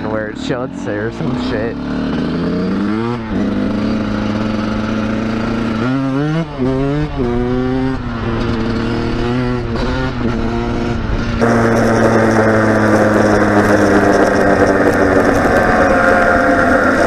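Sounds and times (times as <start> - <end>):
dirt bike engine revving: 0.0 - 17.0
rushing noise: 11.4 - 17.0.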